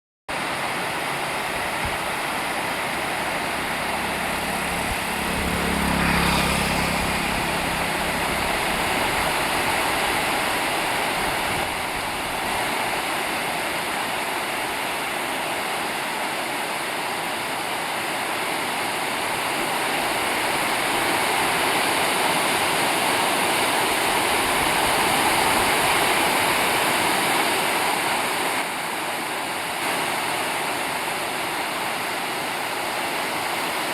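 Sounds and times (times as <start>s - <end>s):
river water rushing: 0.3s - 33.9s
low hum: 1.1s - 10.5s.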